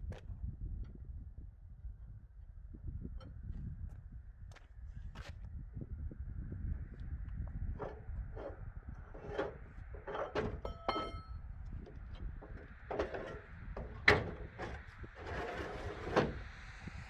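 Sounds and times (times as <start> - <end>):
knocks and clanks: 7.8 - 16.5
short metallic ring: 10.0 - 11.4.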